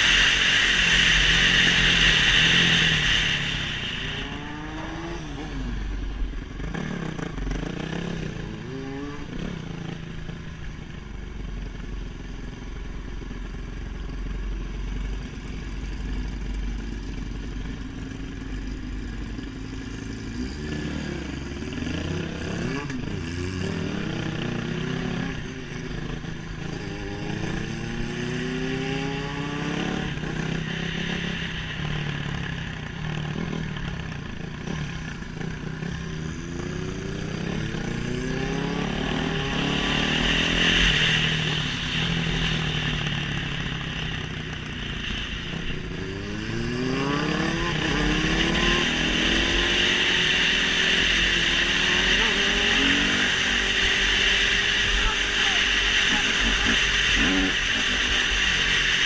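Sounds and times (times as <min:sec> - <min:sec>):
high-pitched rushing sound: 0:00.0 - 0:09.6, 0:23.7 - 0:35.2, 0:35.8 - 0:59.0
motorcycle engine accelerating: 0:00.0 - 0:59.0.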